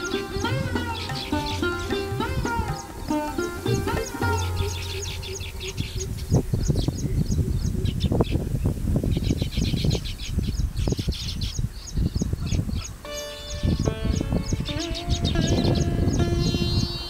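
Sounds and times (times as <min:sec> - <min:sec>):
weaver birds chirping: 0:00.1 - 0:17.0.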